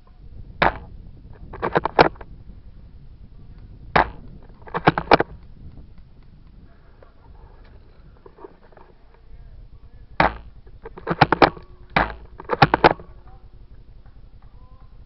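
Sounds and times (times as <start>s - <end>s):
airsoft rifle cracks: 0.6s - 0.9s, 4.0s - 6.3s, 10.2s - 13.2s
mechanical clacks of rifle handling: 1.4s - 2.3s, 10.2s - 13.0s.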